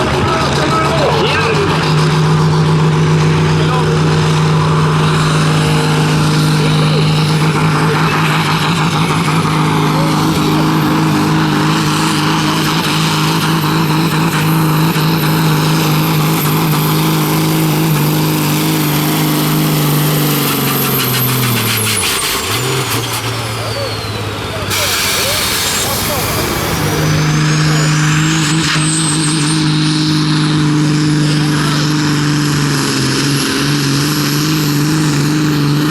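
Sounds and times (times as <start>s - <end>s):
tractor engine running flat out: 0.0s - 35.9s.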